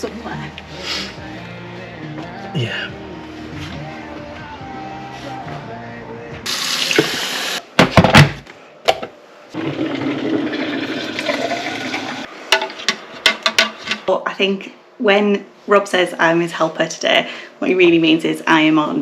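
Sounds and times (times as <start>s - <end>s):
light background music: 0.0s - 7.3s
water running from a tap: 6.5s - 7.6s, 9.9s - 12.3s
sharp knocks and clatters: 12.6s - 14.0s.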